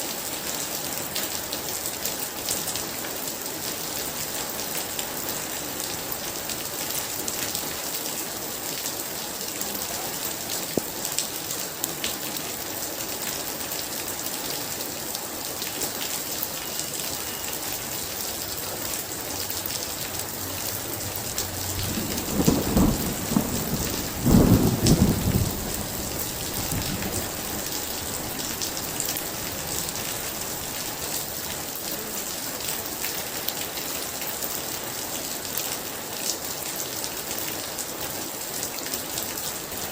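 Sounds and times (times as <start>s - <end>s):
heavy rain: 0.0s - 39.9s
thunder rumble and cracks: 20.7s - 29.2s.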